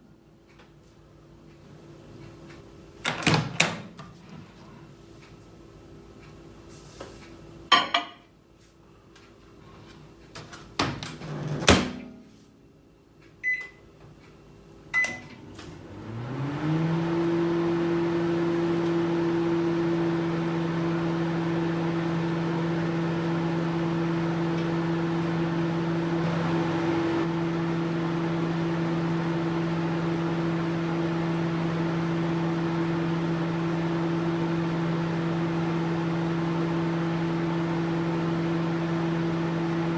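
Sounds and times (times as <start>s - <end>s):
microwave oven humming: 0.0s - 39.9s
keypad beeps: 13.4s - 13.8s, 15.0s - 15.2s.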